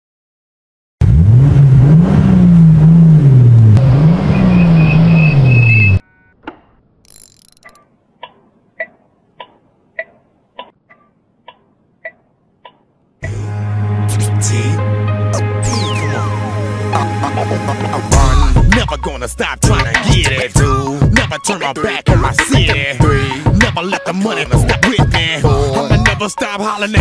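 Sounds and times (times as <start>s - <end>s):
car engine revving: 1.0s - 6.0s
short pitched ticks: 6.5s - 12.8s.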